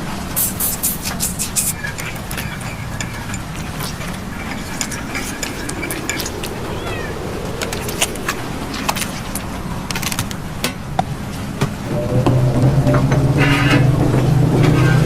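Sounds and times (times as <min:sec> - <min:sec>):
cat meowing: 0:06.4 - 0:08.2.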